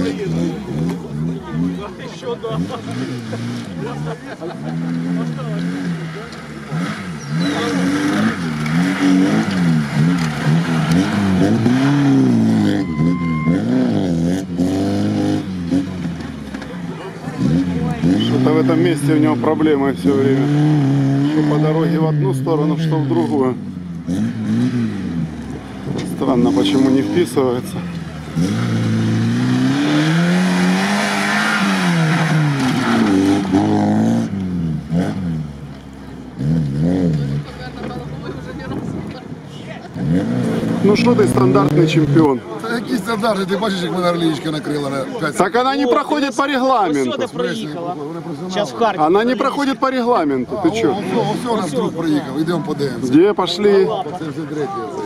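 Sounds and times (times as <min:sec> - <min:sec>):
car engine revving: 0:00.0 - 0:46.8.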